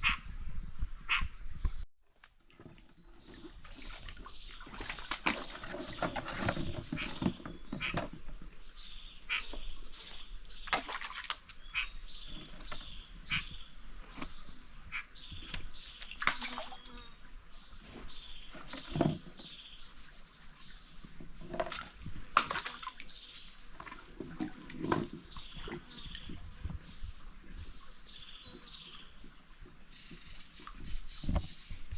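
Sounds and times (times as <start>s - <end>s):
insects buzzing: 0.0s - 1.8s, 3.0s - 31.9s.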